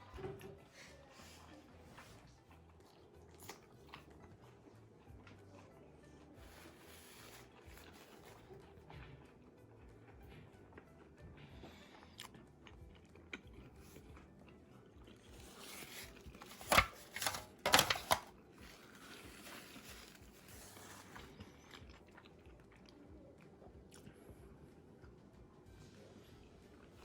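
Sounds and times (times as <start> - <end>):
person chewing: 11.6 - 16.5, 18.6 - 24.3.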